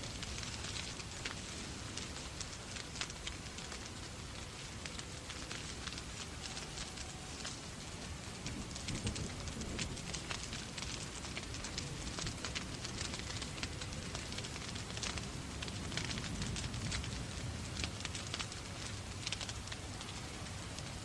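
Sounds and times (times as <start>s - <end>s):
steady rain: 0.0s - 21.0s
wood fire crackling: 0.0s - 21.0s.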